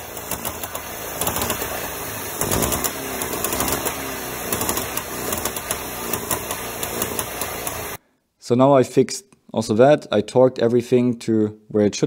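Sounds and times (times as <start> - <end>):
two-stroke engine idling with ticking: 0.0 - 8.0.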